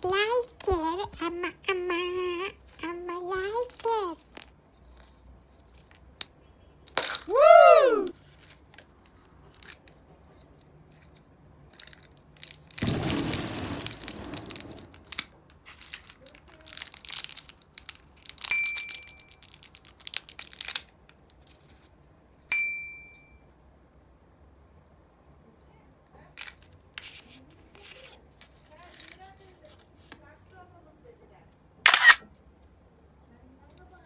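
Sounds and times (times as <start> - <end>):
candy wrappers crinkling: 11.0 - 21.8, 27.8 - 30.0
bright dings: 18.5 - 19.3, 22.5 - 23.4.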